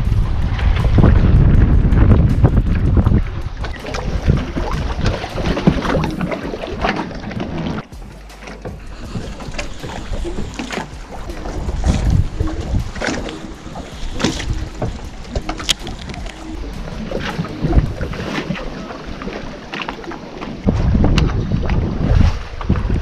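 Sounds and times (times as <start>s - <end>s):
water lapping against boat: 0.0s - 23.0s
wind buffeting microphone: 0.0s - 23.0s
knocks and clicks: 0.4s - 18.5s.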